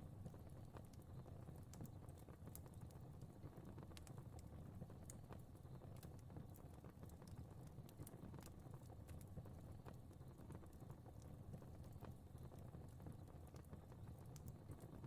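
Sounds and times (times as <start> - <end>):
fire crackling faintly: 0.0 - 15.0.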